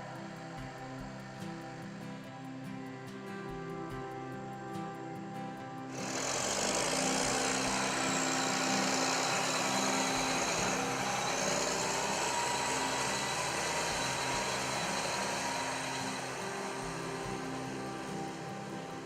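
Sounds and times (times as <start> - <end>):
strong hiss: 5.9 - 19.0
tractor diesel engine running: 5.9 - 19.0.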